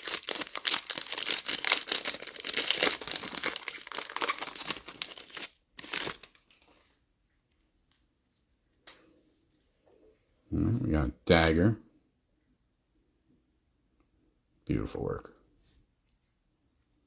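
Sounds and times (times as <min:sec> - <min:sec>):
wrapper tearing and crinkling: 0:00.0 - 0:06.8.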